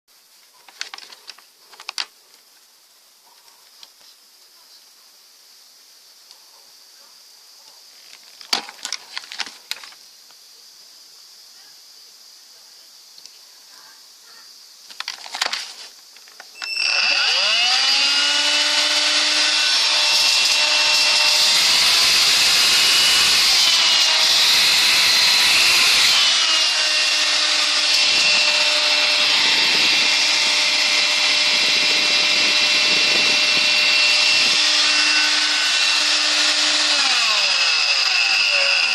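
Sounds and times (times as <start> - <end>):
stick vacuum motor whining: 16.6 - 38.9.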